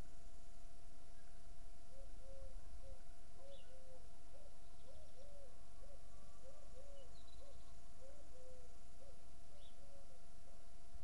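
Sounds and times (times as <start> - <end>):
faint steady tone: 0.0 - 11.0
bird hooting: 1.9 - 10.2.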